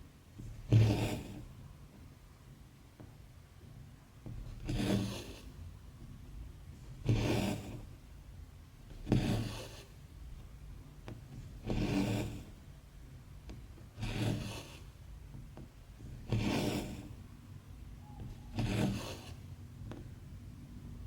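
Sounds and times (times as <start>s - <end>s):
thread rasping through fabric: 0.4s - 1.7s, 4.2s - 8.0s, 8.9s - 20.4s.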